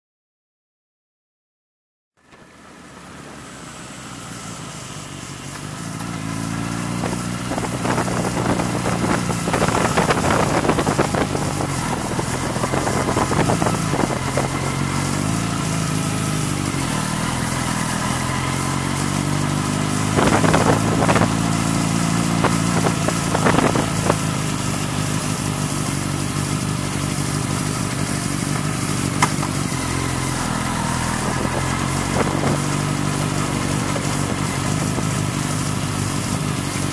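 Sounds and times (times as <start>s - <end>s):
motorcycle engine: 2.2s - 36.9s
rushes of noise: 6.2s - 25.6s.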